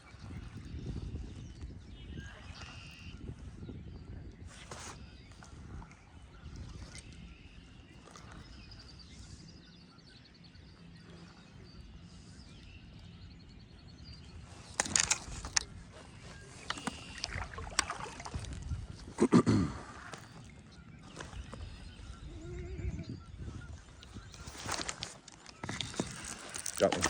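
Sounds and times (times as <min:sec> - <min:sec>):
wind rumbling on microphone: 0:00.0 - 0:27.0
bird trilling faintly: 0:14.5 - 0:19.2.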